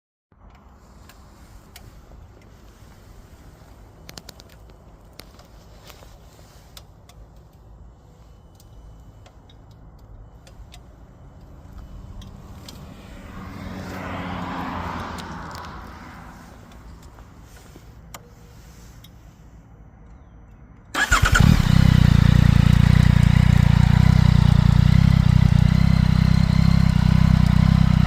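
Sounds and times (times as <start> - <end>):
vehicle passing by: 11.0 - 18.9.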